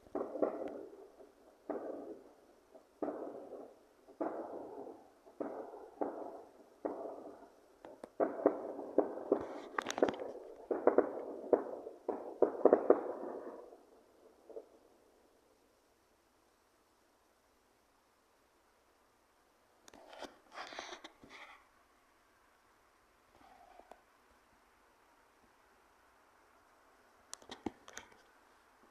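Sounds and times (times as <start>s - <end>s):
distant explosion bangs: 0.1s - 14.7s.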